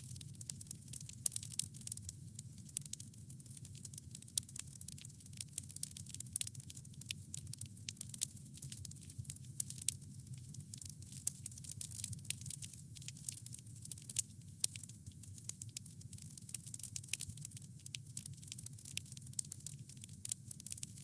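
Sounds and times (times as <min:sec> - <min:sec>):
crackles and pops of burning wood: 0:00.0 - 0:21.0.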